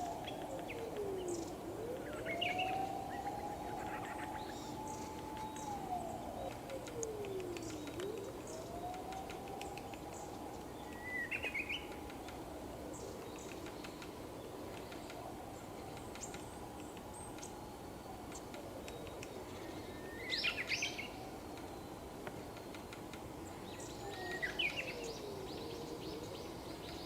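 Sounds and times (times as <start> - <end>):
songbirds chirping: 0.0 - 27.0
faint high ticks: 6.5 - 11.0, 13.2 - 15.2.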